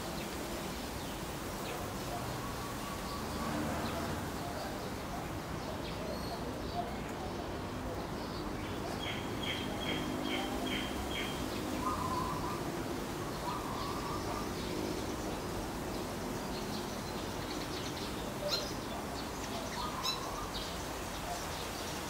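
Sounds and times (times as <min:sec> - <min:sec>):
bird low calls: 0:01.8 - 0:15.5.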